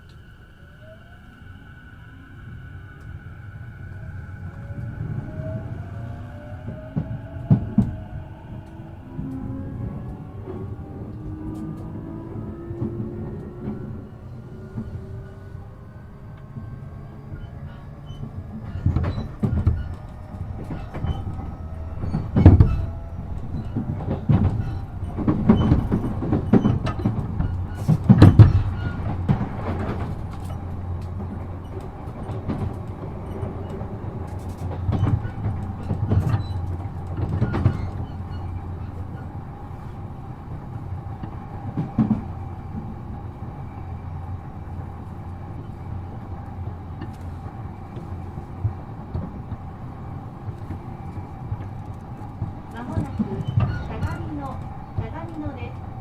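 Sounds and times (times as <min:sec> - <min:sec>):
train rumble: 0:00.0 - 0:56.0
wheels clacking over rail joints: 0:16.3 - 0:56.0.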